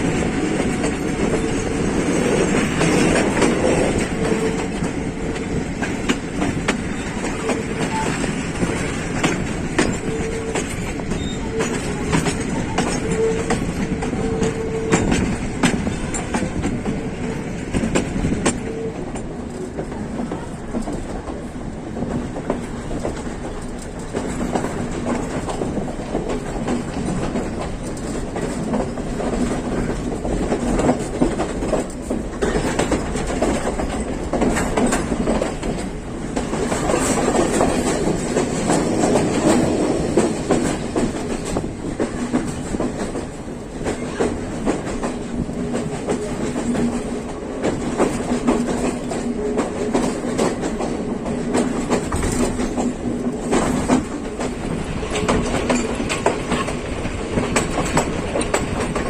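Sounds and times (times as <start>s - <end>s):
low train hum: 0.0s - 59.0s
train wheels clattering: 0.0s - 59.0s.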